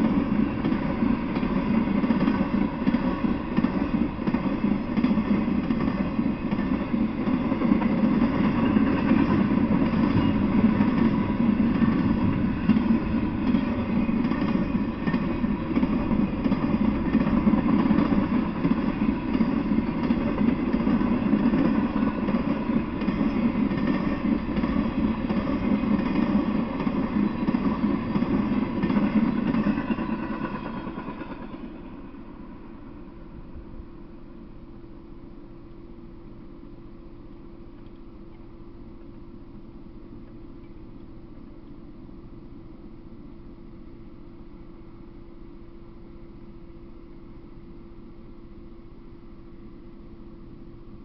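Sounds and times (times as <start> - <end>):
freight train wheels rolling: 0.0 - 34.4.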